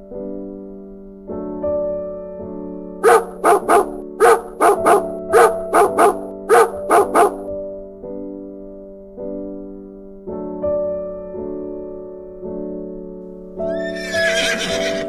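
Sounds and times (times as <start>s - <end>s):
soft piano music: 0.0s - 15.0s
dog barking: 3.0s - 7.5s.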